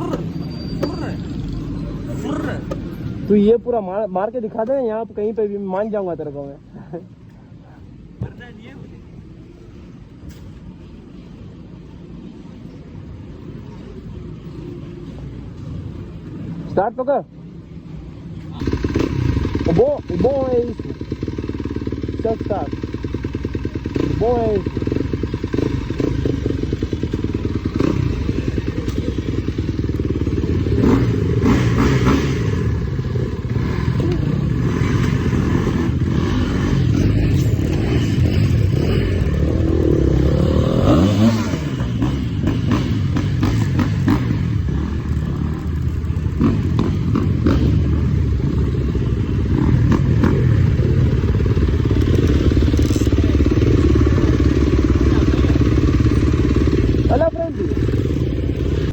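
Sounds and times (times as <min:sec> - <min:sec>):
motocross bike engine revving: 0:18.6 - 0:58.9.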